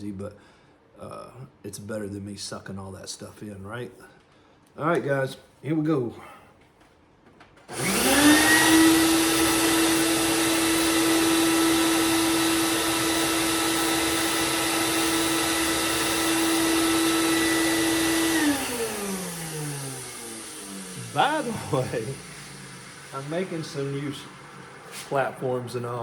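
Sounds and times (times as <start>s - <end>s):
dust collection vacuum running: 7.7s - 26.0s.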